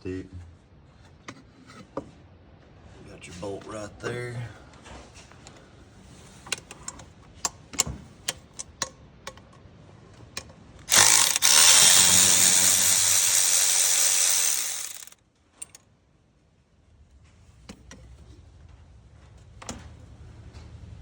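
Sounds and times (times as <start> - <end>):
power tool spinning: 10.9 - 15.2.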